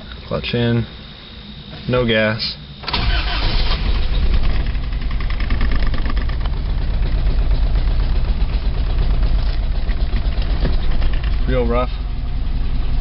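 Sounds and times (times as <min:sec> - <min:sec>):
engine cranking and idling rough: 0:02.8 - 0:13.0.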